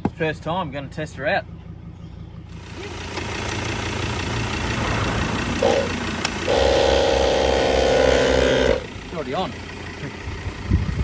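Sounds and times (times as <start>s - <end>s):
air compressor running: 5.4s - 9.1s
buzzing hum: 5.6s - 8.9s.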